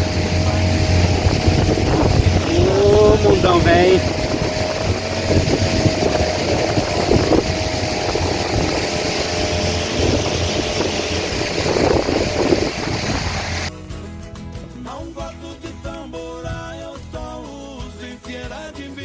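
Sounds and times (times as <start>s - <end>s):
boat motor running: 0.0s - 13.7s.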